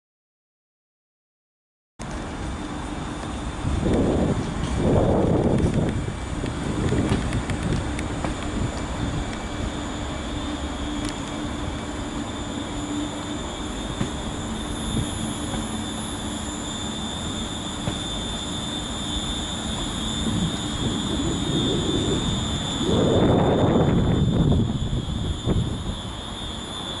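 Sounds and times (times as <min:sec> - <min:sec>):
high steady whine: 0:02.0 - 0:27.0
passenger train rumbling: 0:02.0 - 0:27.0.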